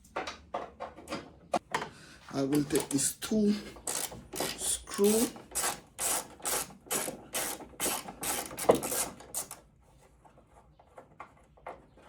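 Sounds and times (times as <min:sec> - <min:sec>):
ratchet wrench ratcheting: 0:03.8 - 0:09.6.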